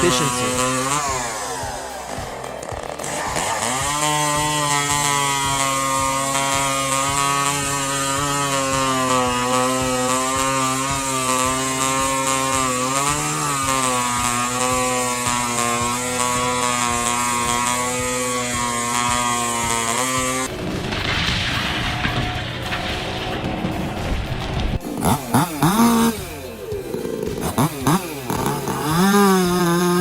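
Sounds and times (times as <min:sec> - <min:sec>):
chainsaw running: 0:00.0 - 0:30.0.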